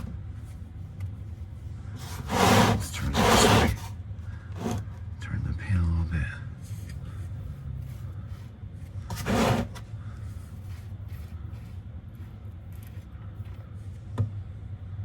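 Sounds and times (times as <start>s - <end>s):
steady low hum: 0.0s - 15.0s
drain pan scraping across floor: 2.0s - 3.9s, 9.1s - 9.8s.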